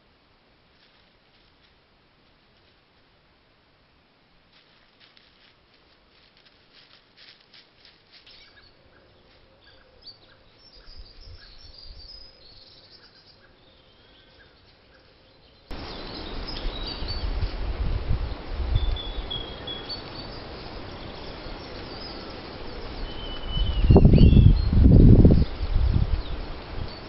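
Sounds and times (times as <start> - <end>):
small birds chirping: 6.8 - 17.6, 18.2 - 27.0.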